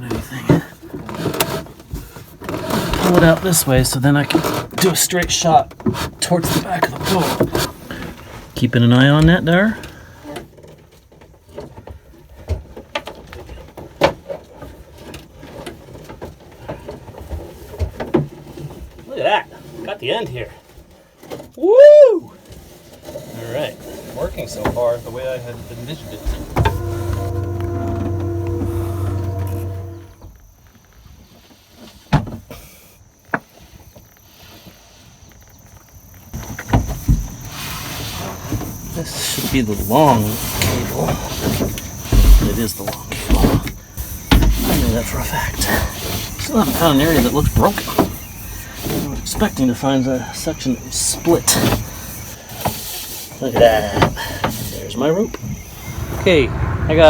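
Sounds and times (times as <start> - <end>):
steering cable scraping and knocking: 0.9 - 8.5, 22.6 - 30.2
steady hum: 26.2 - 30.2, 55.4 - 57.0
thumps: 26.2 - 30.2.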